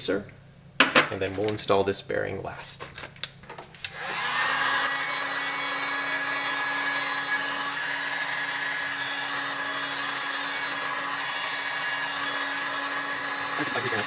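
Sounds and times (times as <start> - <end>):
heat gun fan hum: 3.8 - 14.0.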